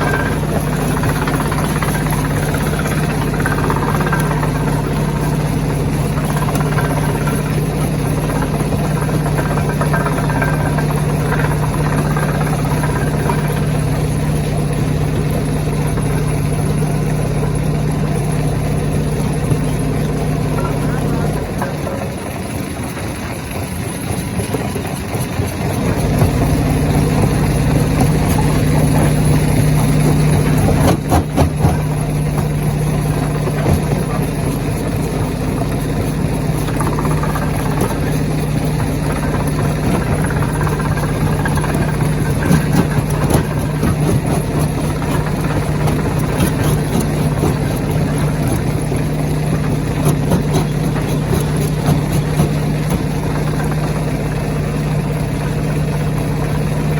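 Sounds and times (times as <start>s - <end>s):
stone crusher machine humming: 0.0s - 56.9s
rock clattering: 26.2s - 54.1s.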